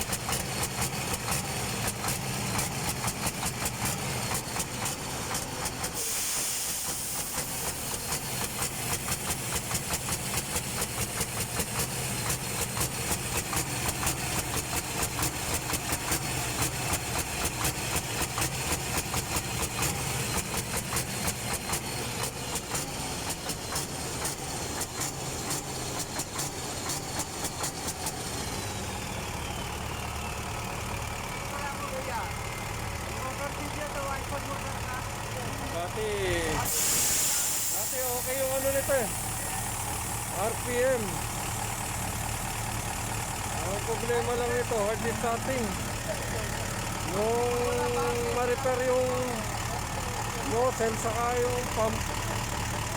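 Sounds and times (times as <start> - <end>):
truck diesel engine pulsing idle: 0.0 - 52.9
short hiss: 5.8 - 10.1, 36.7 - 40.4.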